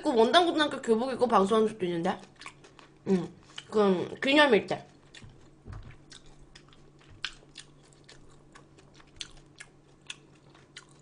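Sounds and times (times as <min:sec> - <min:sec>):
chewing crunchy food: 0:02.0 - 0:03.8, 0:04.7 - 0:11.0.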